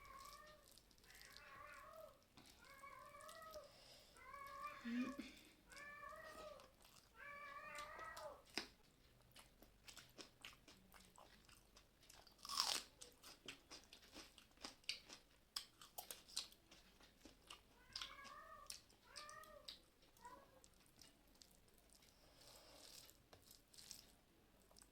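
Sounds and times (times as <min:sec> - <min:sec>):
cat meowing: 0:00.0 - 0:08.5, 0:17.7 - 0:20.7
chewing and crunching food: 0:00.0 - 0:24.9.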